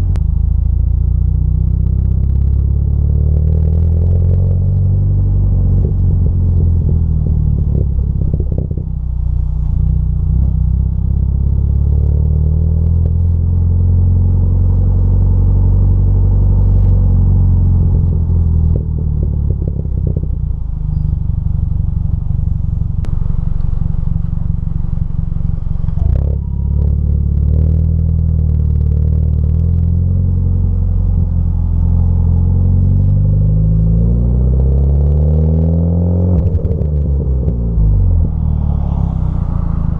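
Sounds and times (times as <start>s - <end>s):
deep car exhaust drone: 0.0s - 39.9s.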